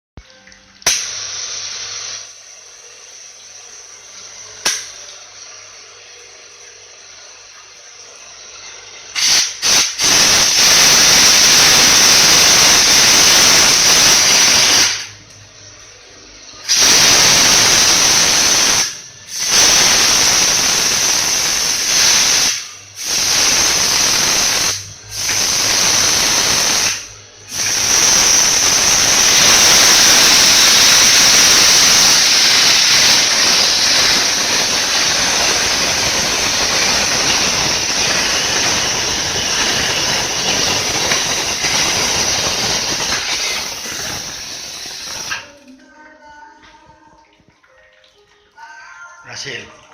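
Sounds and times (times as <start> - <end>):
steam wand hissing: 9.1 - 15.2, 16.6 - 45.5.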